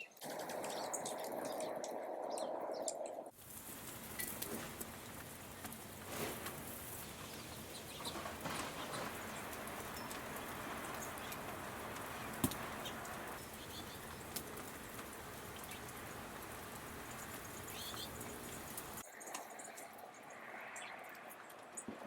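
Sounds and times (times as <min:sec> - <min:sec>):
birds pecking clicks: 0:00.0 - 0:03.2, 0:03.8 - 0:19.9
steady outdoor hiss: 0:00.0 - 0:22.0
bird wing flutters: 0:03.4 - 0:19.0
faint high bird chirps: 0:17.6 - 0:18.6.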